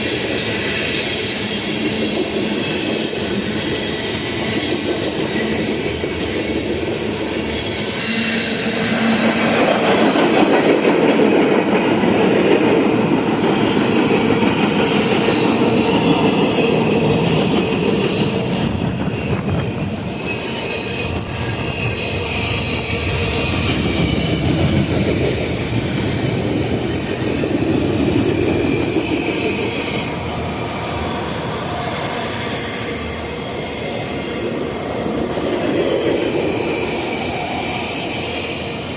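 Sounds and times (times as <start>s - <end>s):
train wheels rumbling on rails: 0.0s - 38.9s
wheel flanges squealing: 13.5s - 31.2s.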